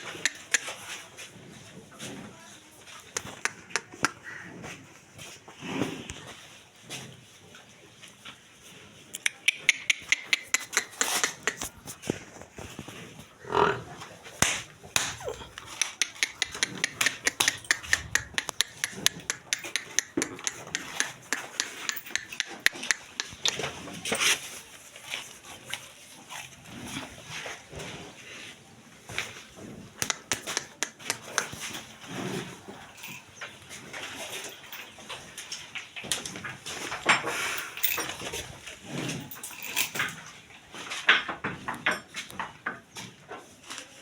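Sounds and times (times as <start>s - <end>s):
sharp irregular clicks and knocks: 3.2s - 4.2s, 9.1s - 12.8s, 14.4s - 23.8s, 30.0s - 31.8s.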